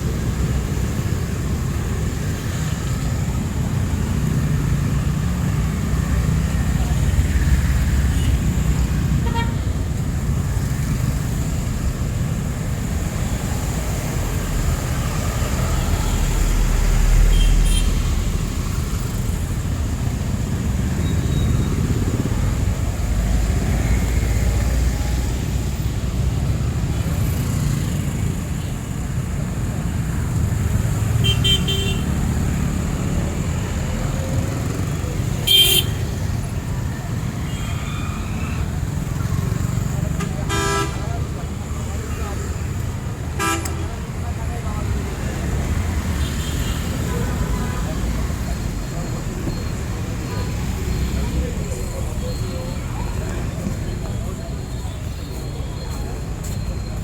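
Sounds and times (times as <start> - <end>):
traffic rumble: 0.0 - 57.0
vehicle horn toots: 40.2 - 41.0.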